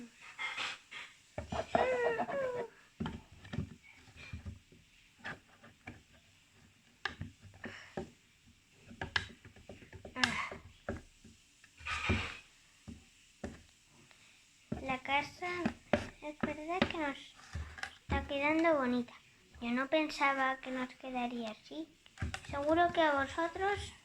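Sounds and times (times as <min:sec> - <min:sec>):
light clicks and taps on wood: 0:03.0 - 0:12.2, 0:15.6 - 0:18.7, 0:21.4 - 0:24.0
rubbing strokes: 0:11.5 - 0:21.2.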